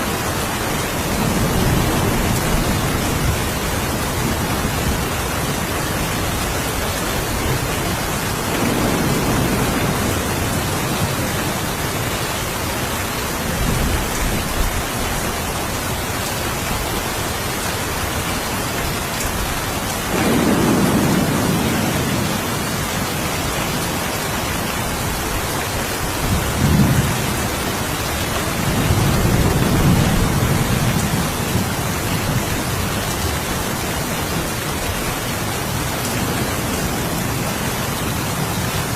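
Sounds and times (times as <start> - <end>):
steady rain: 0.0 - 38.9
thunder rolling: 1.0 - 11.7, 20.1 - 24.0
sharp thunder clap: 20.1 - 22.6.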